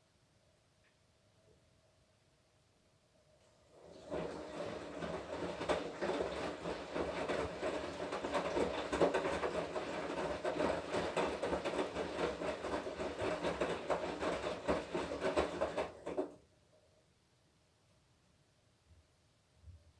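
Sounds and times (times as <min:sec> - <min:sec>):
washing machine drum rumbling: 0:04.0 - 0:16.4.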